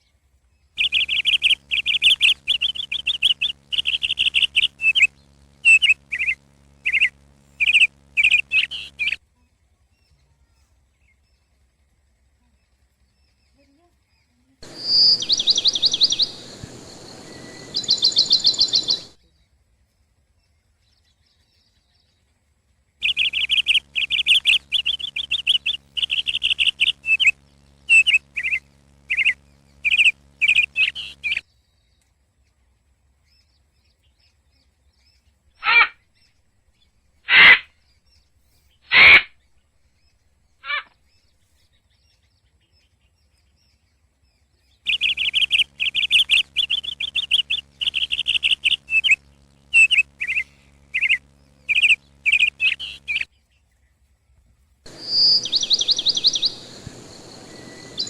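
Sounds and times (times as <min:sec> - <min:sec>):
faint steady hum: 0:00.0 - 0:20.9, 0:22.3 - 0:42.4, 0:43.3 - 0:58.0
birds twittering: 0:00.8 - 0:09.2, 0:14.6 - 0:19.2, 0:23.0 - 0:31.4, 0:44.8 - 0:53.3, 0:54.9 - 0:58.0
short loud bird calls: 0:14.6 - 0:19.2, 0:23.0 - 0:31.4, 0:37.3 - 0:37.7, 0:38.9 - 0:39.4, 0:44.9 - 0:53.3, 0:54.9 - 0:58.0.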